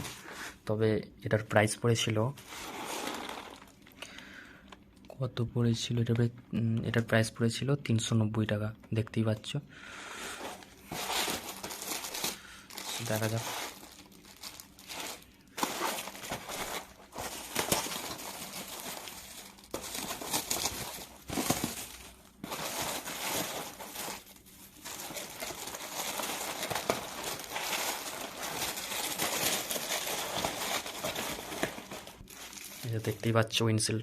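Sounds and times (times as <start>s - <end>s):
packaging crinkling and tearing: 2.5s - 3.9s, 10.5s - 33.4s.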